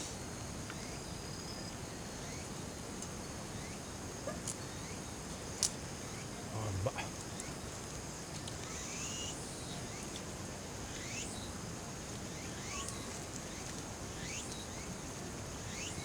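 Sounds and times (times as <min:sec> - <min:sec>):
high insect drone: 0:11.0 - 0:16.0.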